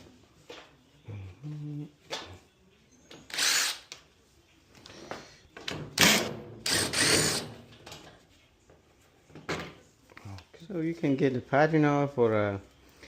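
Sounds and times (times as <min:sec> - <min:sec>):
power drill backing out screws: 0:06.0 - 0:07.4.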